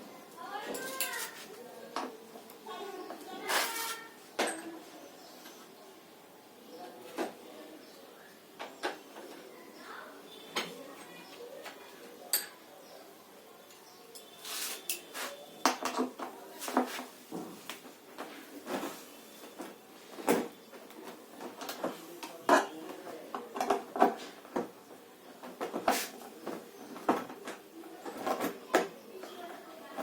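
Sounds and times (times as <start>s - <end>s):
tools clinking on metal parts: 12.3s - 12.6s.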